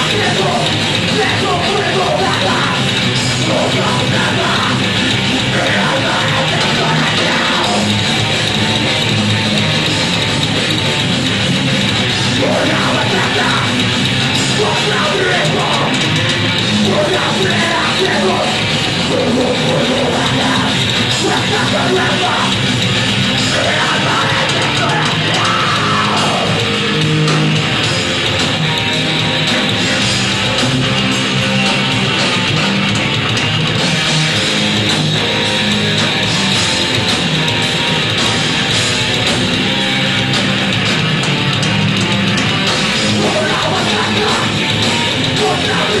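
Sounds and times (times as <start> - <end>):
shouted vocals: 0.0 - 7.9, 12.4 - 13.8, 14.5 - 16.0, 16.8 - 22.6, 23.4 - 26.7, 43.0 - 46.0
distorted electric guitars: 0.0 - 46.0
heavy rock band: 0.0 - 46.0.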